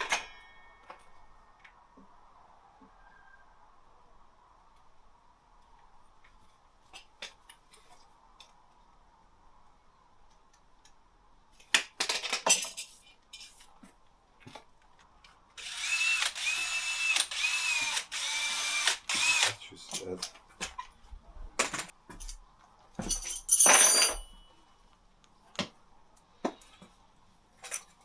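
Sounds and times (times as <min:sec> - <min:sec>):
power drill motor whine: 0:15.6 - 0:19.6.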